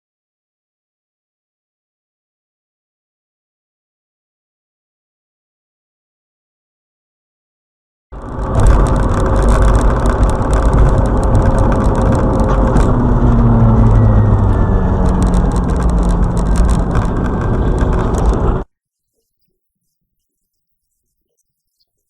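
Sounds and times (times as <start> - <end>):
vehicle engine and road rumble: 8.1 - 18.7
rattling: 8.2 - 18.6.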